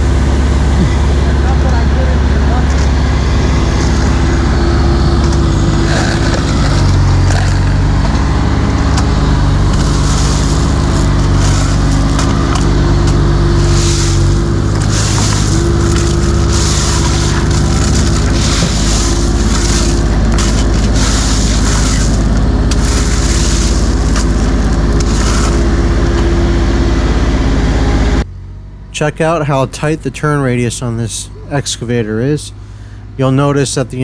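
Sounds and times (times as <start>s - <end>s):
excavator diesel engine under load: 0.0s - 34.0s
hissing noise: 8.4s - 26.2s.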